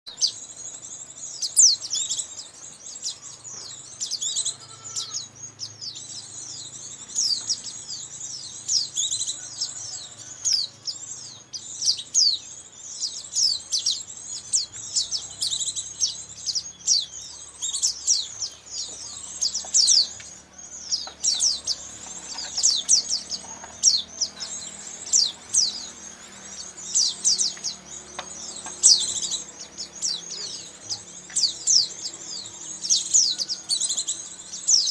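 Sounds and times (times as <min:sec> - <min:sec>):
birds twittering high chirps: 0:00.0 - 0:34.9.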